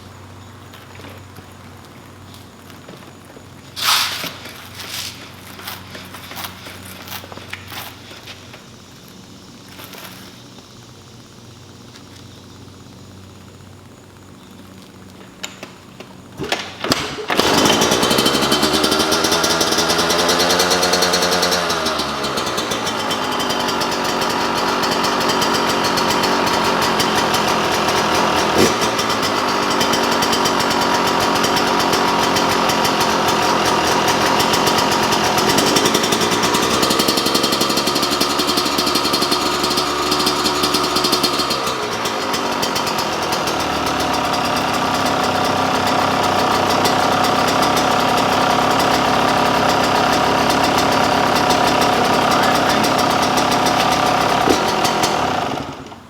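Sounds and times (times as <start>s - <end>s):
engine kick-start knocks: 3.8s - 8.8s, 15.2s - 56.0s
two-stroke engine revving: 3.8s - 8.8s, 16.4s - 56.0s.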